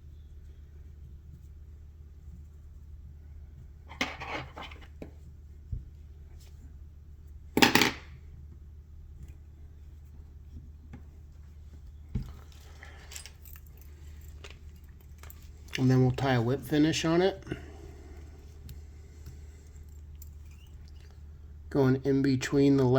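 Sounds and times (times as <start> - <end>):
steady low hum: 0.0 - 22.9
small metal tools clinking: 12.4 - 15.9.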